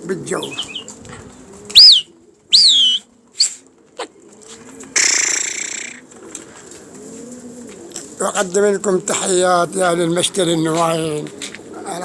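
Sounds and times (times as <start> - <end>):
pigeons cooing: 0.0 - 12.0
high bird chirps: 0.4 - 0.9, 1.7 - 3.6.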